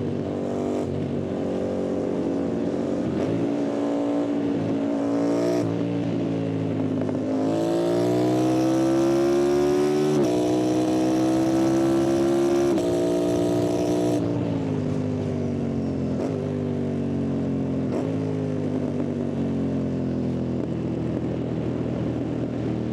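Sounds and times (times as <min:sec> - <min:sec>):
motorcycle engine revving through gears: 0:00.0 - 0:15.0, 0:17.8 - 0:19.2.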